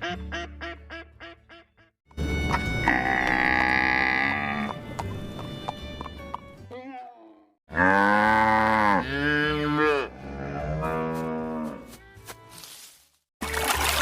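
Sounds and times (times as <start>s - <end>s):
cow mooing: 2.9s - 4.7s, 7.7s - 11.8s.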